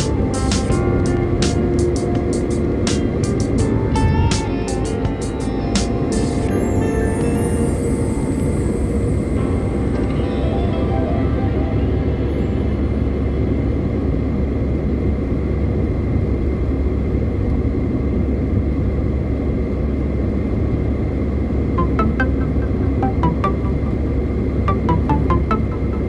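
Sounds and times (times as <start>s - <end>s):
car driving with tyre noise: 0.0s - 6.6s
short musical notes: 0.0s - 13.7s, 21.8s - 26.0s.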